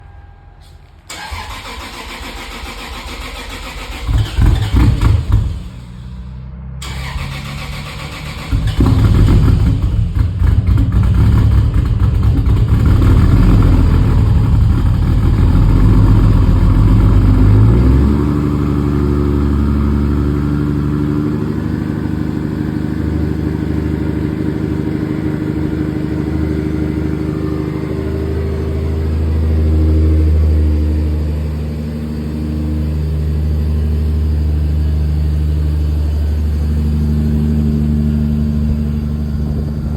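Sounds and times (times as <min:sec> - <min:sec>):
car engine idling: 0:00.6 - 0:17.8, 0:18.4 - 0:39.9
engine cranking: 0:01.1 - 0:06.2, 0:06.8 - 0:15.2.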